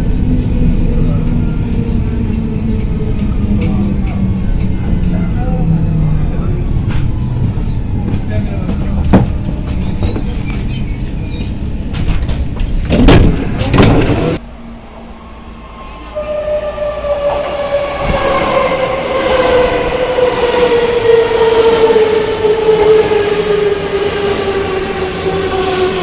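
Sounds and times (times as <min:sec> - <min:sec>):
train wheels rumbling: 0:00.0 - 0:26.0
traction drive whine: 0:02.8 - 0:26.0
train clanks: 0:06.8 - 0:14.4.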